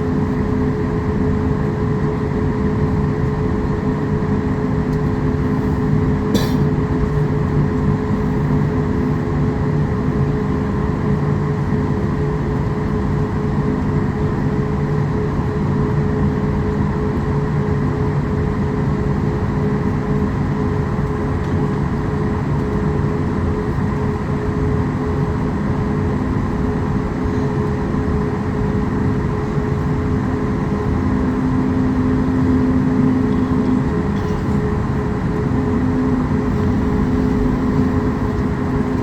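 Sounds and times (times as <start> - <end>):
jet engines idling in cabin: 0.0 - 39.0
constant whining tones: 31.8 - 39.0.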